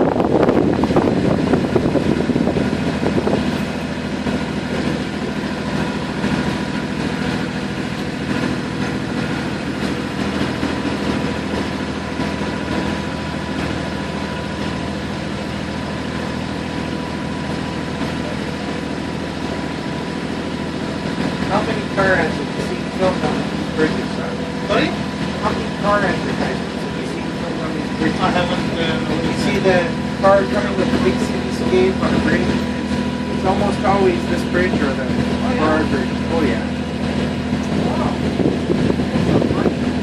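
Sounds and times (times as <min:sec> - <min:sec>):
wind noise: 0:00.0 - 0:03.8, 0:38.1 - 0:40.0
boat engine droning: 0:00.0 - 0:40.0
water noise: 0:00.0 - 0:40.0.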